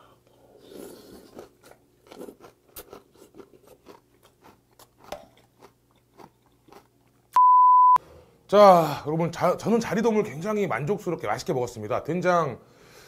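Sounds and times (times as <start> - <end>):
crunchy chewing: 0.6 - 7.3.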